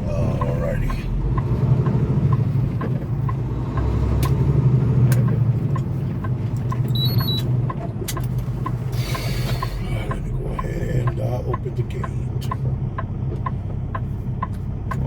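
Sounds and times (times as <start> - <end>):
truck engine rumble: 0.0 - 15.0
light ticking: 0.2 - 15.0
electronic beep: 6.9 - 7.5.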